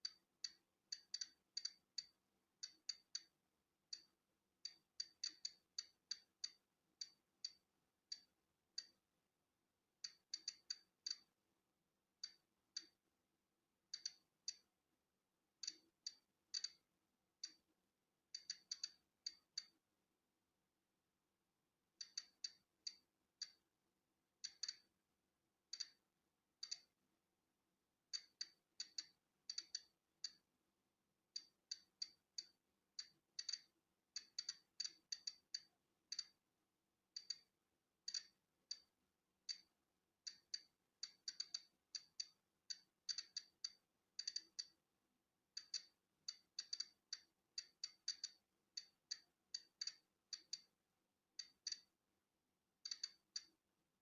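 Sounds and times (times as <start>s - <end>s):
geiger counter clicking: 0.0s - 9.0s, 10.0s - 11.4s, 12.2s - 13.0s, 13.9s - 14.7s, 15.6s - 16.8s, 18.4s - 19.8s, 22.0s - 23.6s, 24.4s - 24.9s, 25.7s - 26.0s, 26.6s - 26.9s, 28.1s - 30.4s, 31.4s - 36.4s, 37.2s - 38.9s, 39.5s - 44.8s, 45.6s - 50.7s, 51.4s - 51.9s, 52.8s - 53.6s.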